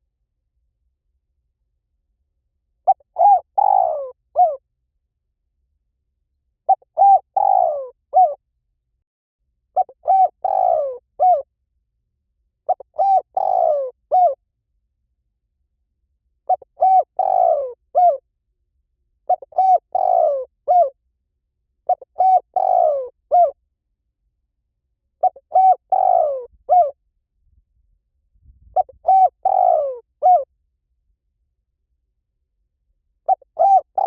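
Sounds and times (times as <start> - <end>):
dove cooing: 2.9 - 4.6, 6.7 - 8.4, 9.8 - 11.4, 12.7 - 14.4, 16.5 - 18.2, 19.3 - 21.0, 21.9 - 23.6, 25.2 - 27.0, 28.7 - 30.5, 33.3 - 34.0.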